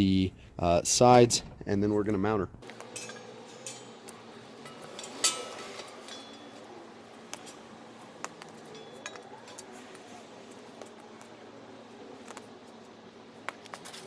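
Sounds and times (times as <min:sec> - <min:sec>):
metal parts clinking: 0:02.6 - 0:06.7
ringing metal clink: 0:02.6 - 0:10.7.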